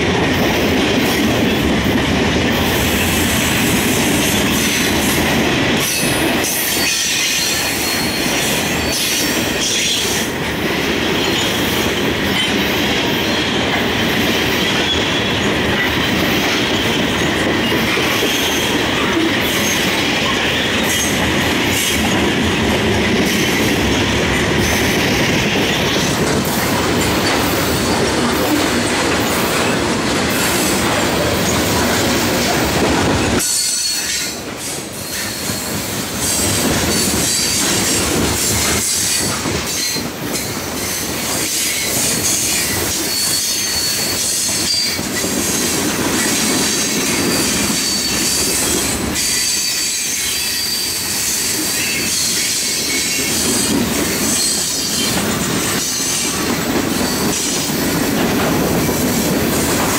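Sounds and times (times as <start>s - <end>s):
train wheels rumbling and clacking: 0.0s - 59.9s
high wheel squeal: 6.0s - 10.0s, 41.7s - 45.1s, 46.7s - 57.6s.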